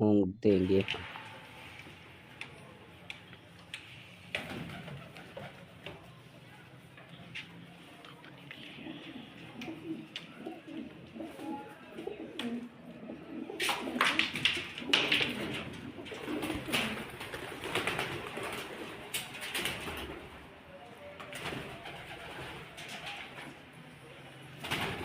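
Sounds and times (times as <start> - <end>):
pigeons cooing: 8.4 - 20.4.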